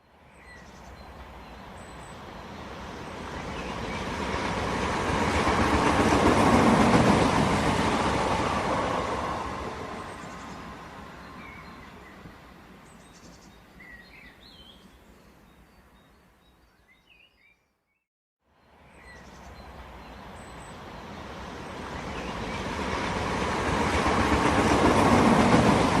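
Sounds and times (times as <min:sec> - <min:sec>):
train rumbling on rails: 0:00.7 - 0:12.8, 0:19.4 - 0:26.0
bird chirps: 0:12.9 - 0:18.0.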